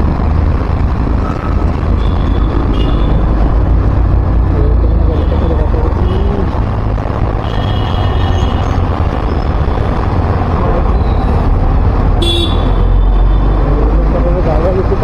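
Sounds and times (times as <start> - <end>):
road traffic rumble: 0.0 - 15.0
car horn toot: 12.2 - 12.8.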